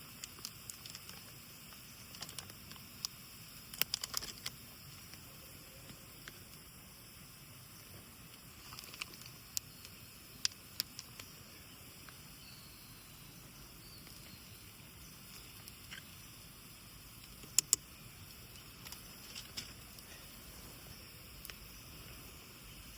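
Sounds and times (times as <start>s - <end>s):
campfire crackling and popping: 0.0s - 5.3s, 5.9s - 12.4s, 14.0s - 20.5s, 21.3s - 22.5s.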